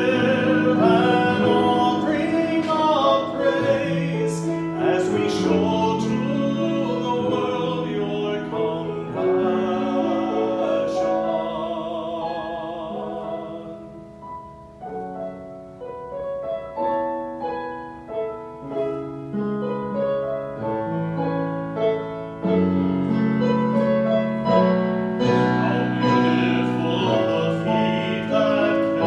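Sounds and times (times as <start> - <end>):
person singing with vibrato: 0.0 - 14.2, 24.4 - 29.0
piano chords: 0.0 - 29.0.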